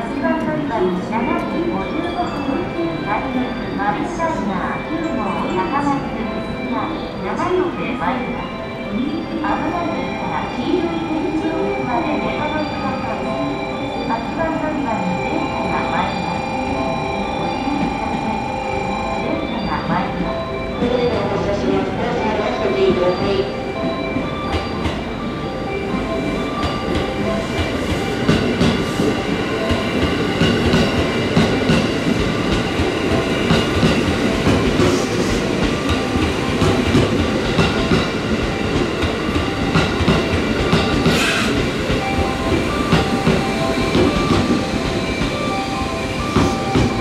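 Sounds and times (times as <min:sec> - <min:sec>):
train wheels rumbling on rail: 0:19.8 - 0:47.0
rail joint clicks: 0:25.9 - 0:47.0.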